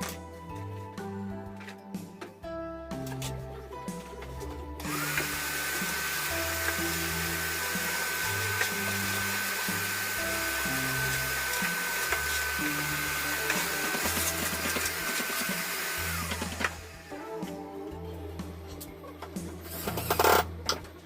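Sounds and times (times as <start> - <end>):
background music: 0.0 - 21.0
power tool motor whining: 4.8 - 17.3.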